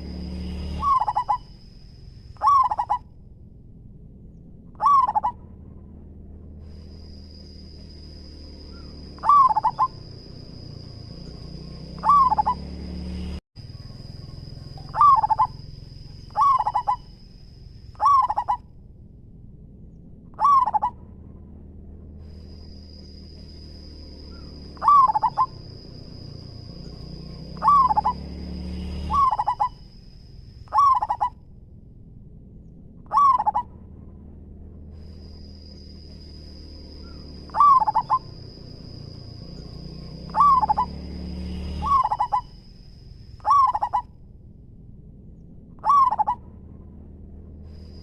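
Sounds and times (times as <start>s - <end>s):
high-pitched whine: 0.0s - 18.8s
low hum: 0.0s - 48.0s
dove cooing: 0.8s - 1.5s, 2.4s - 3.0s, 4.8s - 5.4s, 8.7s - 10.2s, 11.6s - 12.7s, 13.8s - 15.6s, 16.3s - 17.2s, 18.0s - 18.6s, 20.4s - 21.0s, 24.3s - 25.8s, 27.3s - 28.2s, 29.1s - 29.8s, 30.7s - 31.4s, 33.1s - 33.7s, 37.0s - 38.5s, 40.2s - 41.0s, 41.8s - 42.6s, 43.4s - 44.1s, 45.8s - 46.4s.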